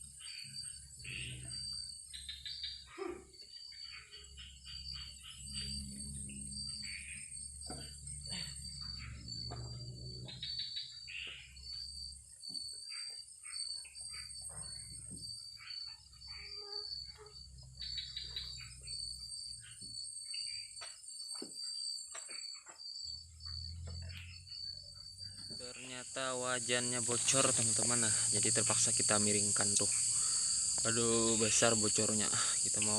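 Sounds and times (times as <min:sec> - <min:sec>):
cricket chirping: 0:00.0 - 0:32.9
high insect buzz: 0:00.0 - 0:32.9.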